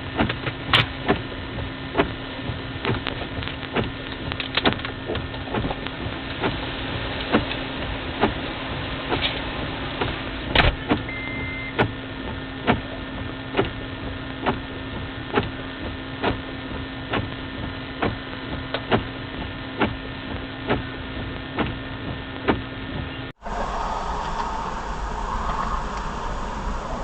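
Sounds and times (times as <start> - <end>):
short high beep: 11.1 - 11.8.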